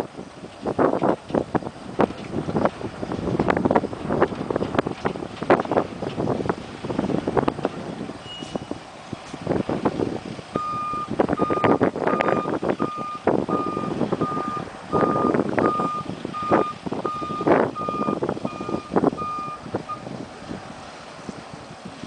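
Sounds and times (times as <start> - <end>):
truck backup alarm beeping: 8.2 - 8.8, 10.5 - 20.2.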